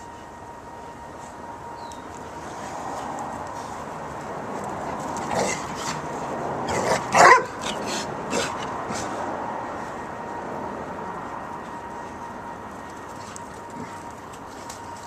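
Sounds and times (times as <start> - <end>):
steady background noise: 0.0 - 15.0
dog barking: 6.8 - 7.6.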